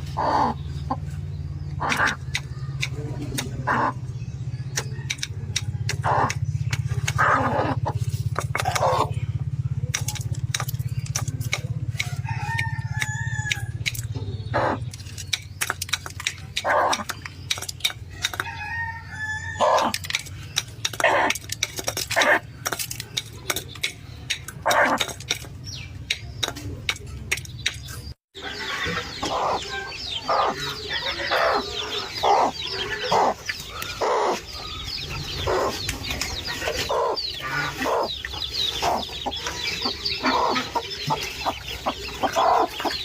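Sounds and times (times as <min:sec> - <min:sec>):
chicken clucking: 0:01.8 - 0:09.1, 0:09.8 - 0:19.0, 0:19.6 - 0:43.0
sharp clicks: 0:01.9 - 0:03.6, 0:04.6 - 0:07.2, 0:09.8 - 0:14.2, 0:14.8 - 0:18.6, 0:19.8 - 0:28.2
rooster crowing: 0:12.0 - 0:13.7, 0:18.4 - 0:20.0.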